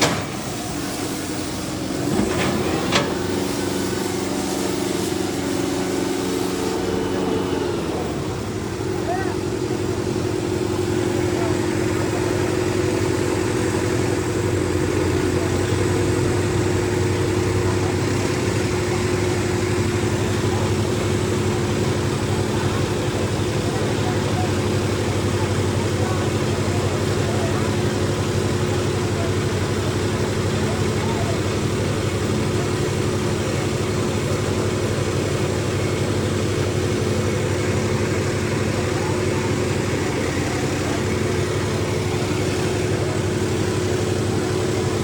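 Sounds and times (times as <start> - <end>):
tractor engine running: 0.0 - 45.0.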